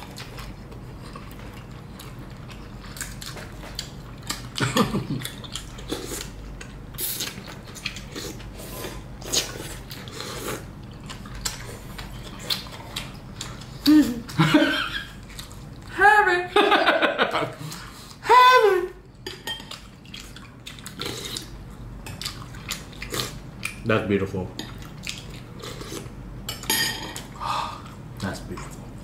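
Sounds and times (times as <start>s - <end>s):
chewing and slurping noodles: 0.0s - 13.9s, 19.7s - 23.8s.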